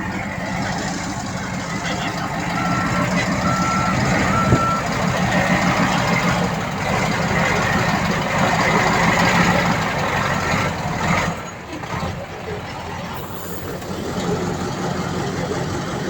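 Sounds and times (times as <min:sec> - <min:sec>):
heavy machinery diesel engine: 0:00.0 - 0:16.0
reversing beep: 0:02.1 - 0:05.0.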